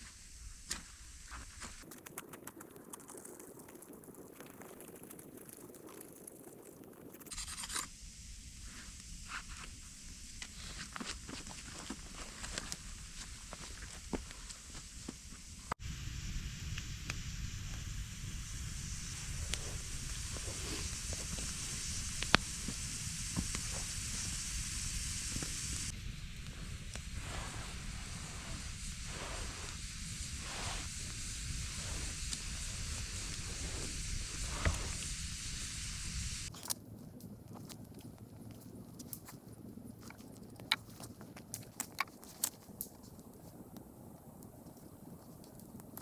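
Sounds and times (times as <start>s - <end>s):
high hiss: 0.0s - 36.5s
campfire crackling: 0.2s - 7.9s, 8.6s - 46.0s
sharp pops of fire: 16.6s - 35.1s.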